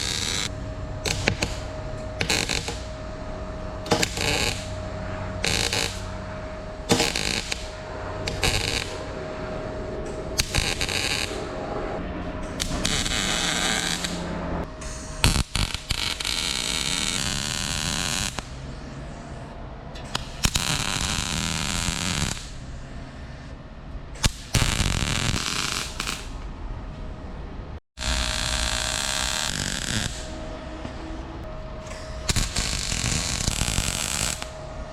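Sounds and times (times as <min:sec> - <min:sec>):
welder crackling and hissing: 0:00.0 - 0:09.2, 0:10.0 - 0:11.6, 0:12.4 - 0:19.0, 0:20.1 - 0:22.6, 0:24.2 - 0:26.5, 0:28.0 - 0:30.4, 0:31.9 - 0:34.6.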